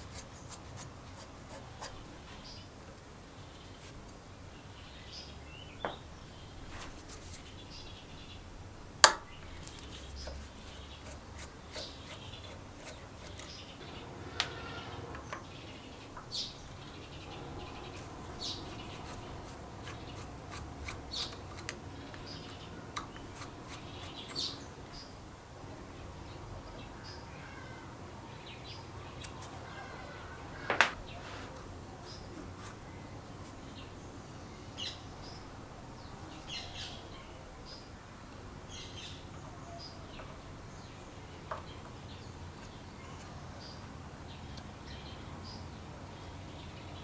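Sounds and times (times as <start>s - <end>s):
tools clicking and scraping: 9.0s - 15.5s, 16.2s - 24.7s, 29.2s - 29.6s.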